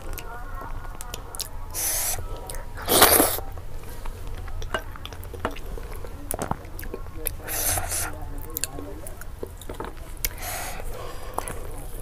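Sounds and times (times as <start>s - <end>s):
chewing and wet mouth sounds: 0.0s - 12.0s
short hissing bursts: 1.8s - 3.4s, 7.4s - 8.2s.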